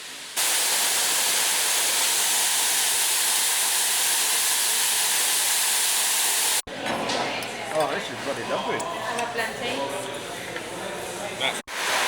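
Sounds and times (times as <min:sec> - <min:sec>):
rush of falling water: 0:00.0 - 0:06.6, 0:11.7 - 0:12.0.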